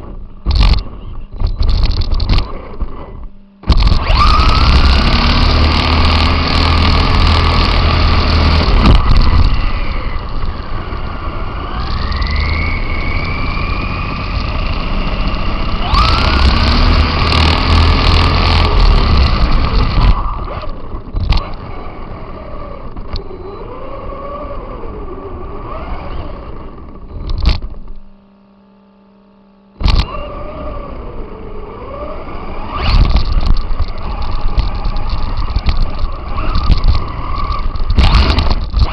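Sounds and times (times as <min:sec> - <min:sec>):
toy car motor whining: 0:00.0 - 0:27.7, 0:29.8 - 0:38.9
wind noise: 0:00.0 - 0:27.9, 0:29.8 - 0:38.9.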